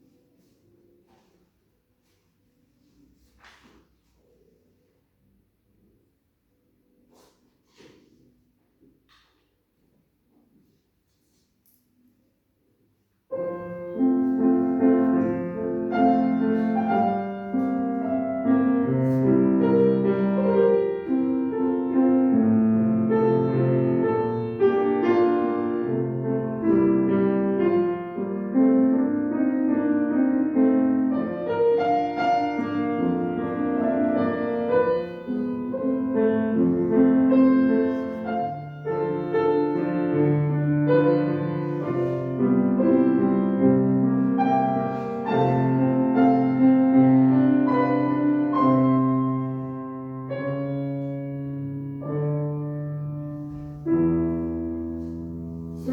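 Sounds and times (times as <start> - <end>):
classical piano music: 13.2 - 55.9.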